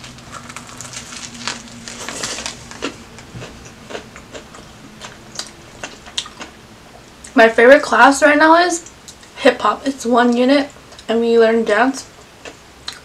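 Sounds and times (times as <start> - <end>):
chewing with soft crunches: 0.0 - 7.4.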